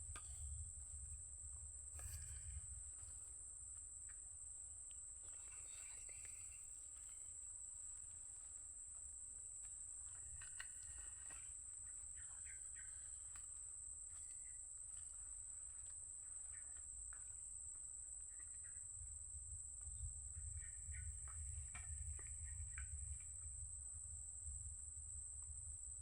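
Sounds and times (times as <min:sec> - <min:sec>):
bird chirps: 0:11.3 - 0:13.4.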